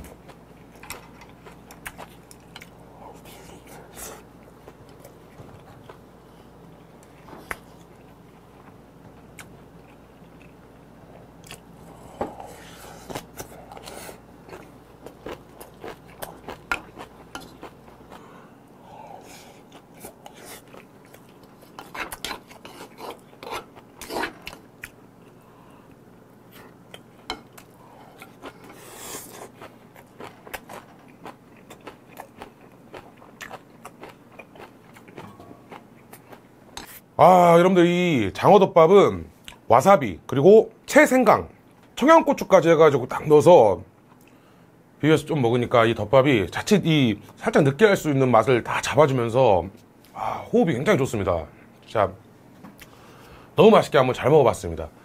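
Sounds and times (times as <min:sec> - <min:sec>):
person chewing food: 0:00.1 - 0:37.0.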